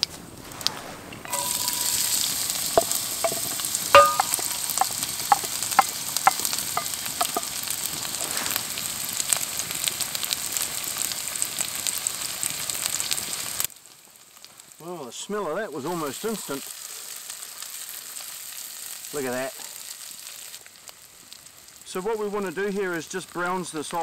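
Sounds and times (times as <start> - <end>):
onion sizzling in hot oil: 0.0 - 24.0
sharp clinks: 1.3 - 7.6.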